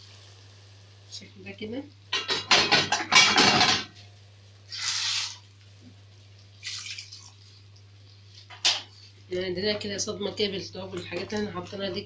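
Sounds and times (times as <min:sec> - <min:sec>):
running water splashing: 0:06.4 - 0:07.9.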